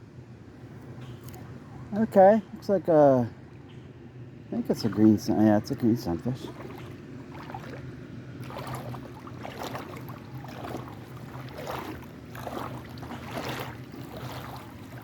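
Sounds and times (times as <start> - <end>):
steady low hum: 0.0 - 15.0
creek water splashing: 4.6 - 15.0.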